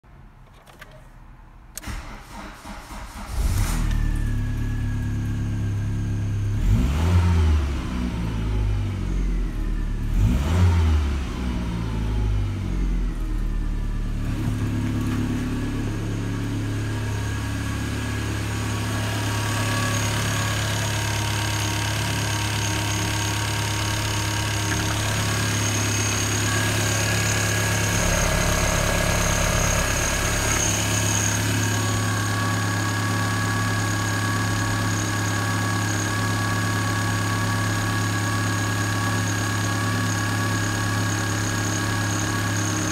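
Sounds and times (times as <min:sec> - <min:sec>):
car engine cranking and starting: 0:01.7 - 0:05.6, 0:13.0 - 0:42.9
car engine revving: 0:06.1 - 0:08.9, 0:10.0 - 0:12.8, 0:14.1 - 0:39.6
car engine idling: 0:13.0 - 0:42.9.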